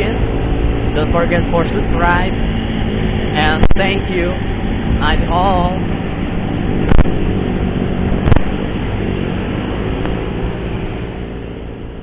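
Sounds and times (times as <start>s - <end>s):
motorcycle engine rumble: 0.0s - 12.0s
wind noise: 0.0s - 12.0s.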